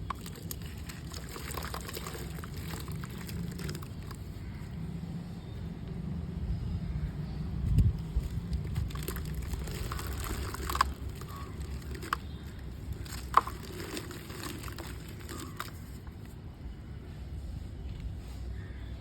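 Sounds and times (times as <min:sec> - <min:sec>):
dried mud crumbling: 0:00.0 - 0:04.9, 0:07.6 - 0:16.4.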